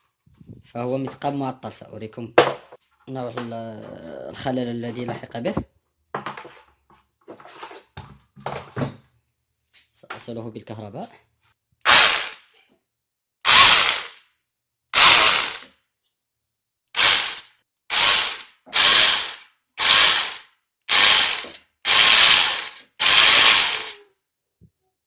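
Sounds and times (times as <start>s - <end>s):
rotary hammer drill grinding bursts: 11.9s - 12.4s, 13.5s - 14.2s, 15.0s - 15.7s, 17.0s - 24.0s.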